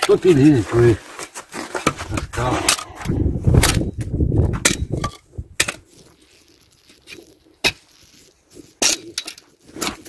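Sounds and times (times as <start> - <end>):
wind buffeting microphone: 2.0 - 5.6.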